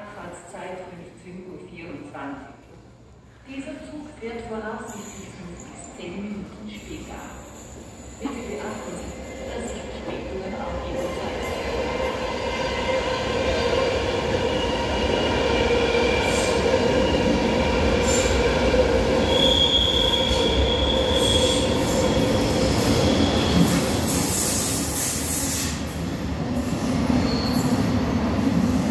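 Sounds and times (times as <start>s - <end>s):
train wheels rumbling on rails: 8.4s - 28.9s
high-pitched wheel squeal: 19.2s - 21.6s.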